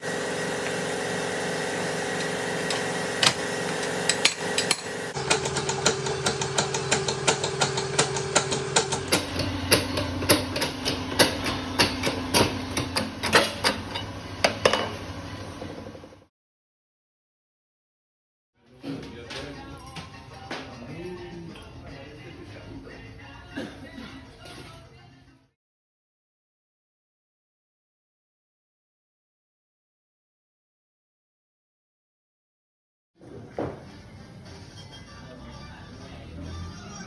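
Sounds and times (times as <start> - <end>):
machine hum: 0.0 - 16.3.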